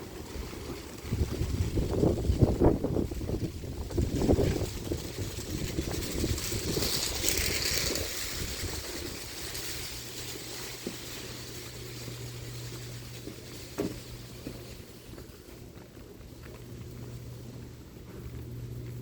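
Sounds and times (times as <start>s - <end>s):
wind buffeting microphone: 0.0s - 10.1s
steady low hum: 0.0s - 19.0s.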